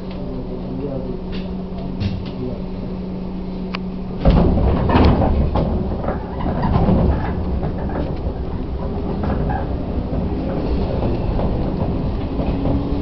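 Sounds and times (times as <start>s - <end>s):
electric train hum and rumble: 0.0s - 13.0s
train knocks and clunks: 1.2s - 2.6s, 4.1s - 13.0s.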